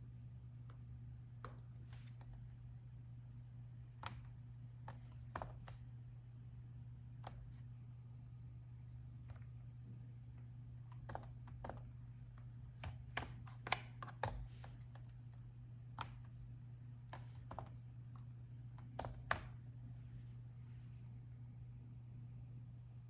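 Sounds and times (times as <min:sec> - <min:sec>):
faint low hum: 0:00.0 - 0:23.0
laptop keyboard typing: 0:04.0 - 0:05.9, 0:10.9 - 0:15.2, 0:17.1 - 0:19.6.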